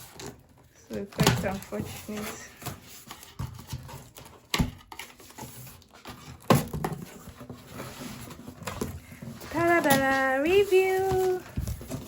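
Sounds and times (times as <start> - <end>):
cardboard box rustling: 0.0 - 12.0.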